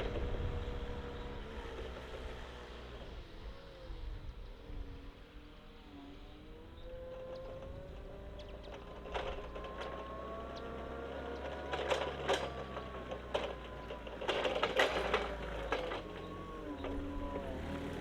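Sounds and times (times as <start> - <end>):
forklift engine humming and whining: 0.0 - 18.0
sharp knocks and rattles: 7.4 - 17.2.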